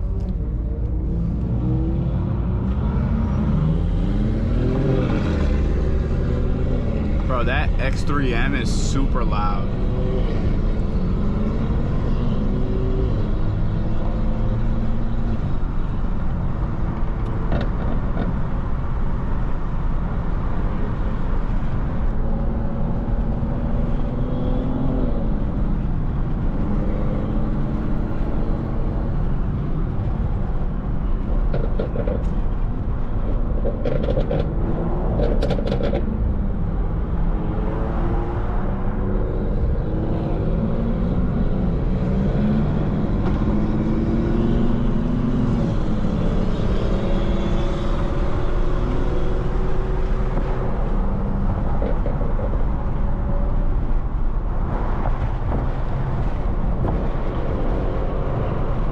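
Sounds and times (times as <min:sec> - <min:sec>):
road noise inside car: 0:00.0 - 0:58.9.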